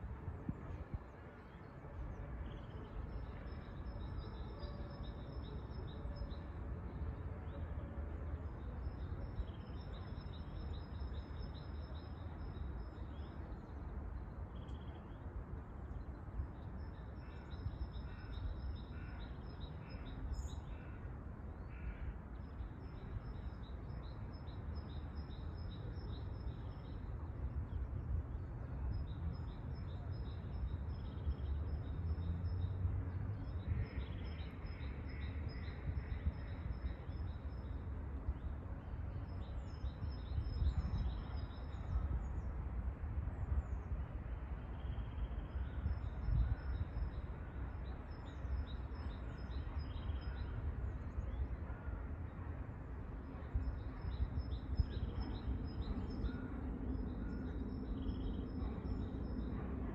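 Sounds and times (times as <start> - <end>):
steady low rumble: 53.2 - 59.9
songbirds trilling and chirping: 53.5 - 59.9.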